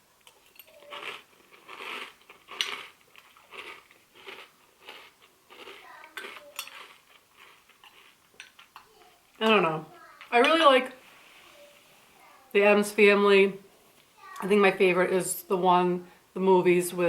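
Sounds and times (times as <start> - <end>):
crunching and chewing cereal: 0.2 - 8.8
spoon clinking on bowl: 6.2 - 6.8.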